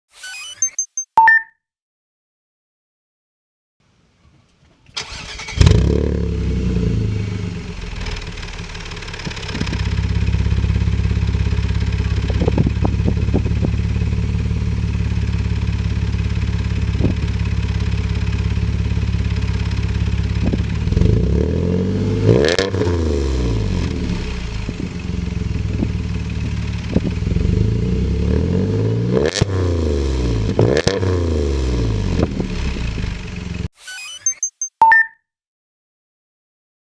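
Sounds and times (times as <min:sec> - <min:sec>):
engine starting: 0:04.8 - 0:06.1
engine revving: 0:05.0 - 0:10.7, 0:20.4 - 0:24.5, 0:27.0 - 0:33.0.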